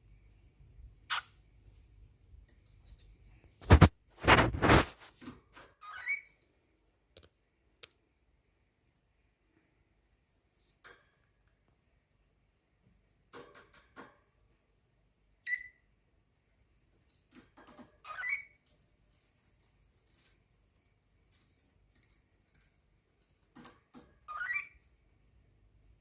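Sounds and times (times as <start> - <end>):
cockatiel chirping: 5.8 - 6.3, 15.4 - 15.8, 18.0 - 18.6, 24.3 - 24.8
light clicks and taps: 18.6 - 24.1.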